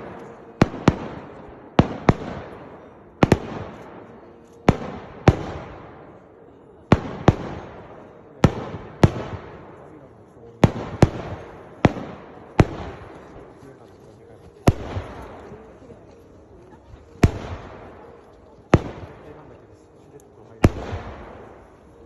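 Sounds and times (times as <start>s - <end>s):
fireworks bangs: 14.6s - 15.8s, 17.2s - 19.5s, 20.6s - 22.0s.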